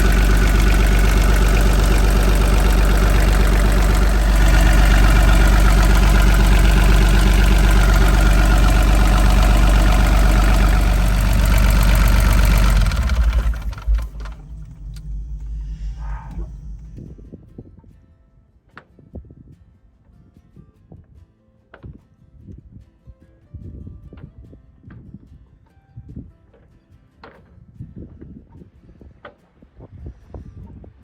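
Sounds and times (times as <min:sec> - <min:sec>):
diesel engine idling: 0:00.0 - 0:17.4.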